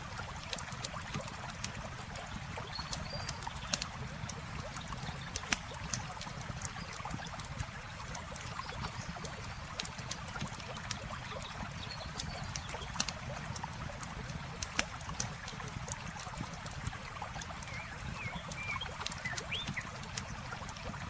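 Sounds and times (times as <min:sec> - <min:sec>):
campfire crackling: 0:00.0 - 0:21.0
flowing water rushing: 0:00.0 - 0:21.0.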